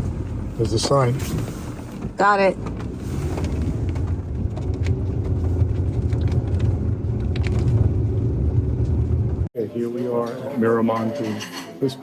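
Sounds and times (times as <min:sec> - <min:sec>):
car cabin road rumble: 0:00.0 - 0:09.5.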